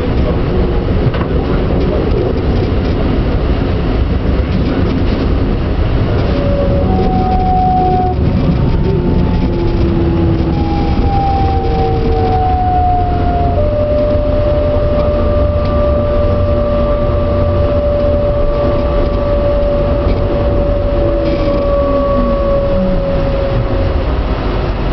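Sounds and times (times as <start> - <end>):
train running rumble: 0.0 - 24.9
thin whining tones: 5.9 - 24.9.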